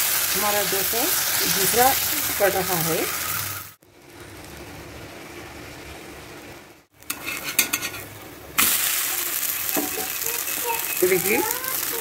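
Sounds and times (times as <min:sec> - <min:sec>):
batter sizzling on a griddle: 0:00.0 - 0:04.6, 0:06.9 - 0:12.0
steel spatula scraping a griddle: 0:07.1 - 0:08.1.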